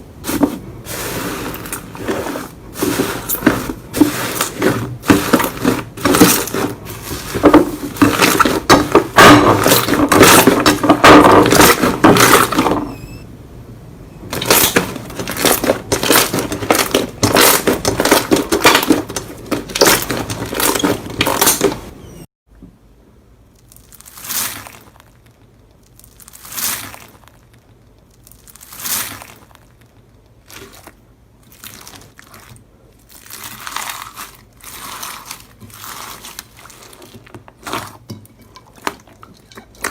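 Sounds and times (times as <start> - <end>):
slime squishing: 0.0 - 12.9, 14.3 - 22.0, 23.6 - 39.9
slime crackling and popping: 23.5 - 38.0.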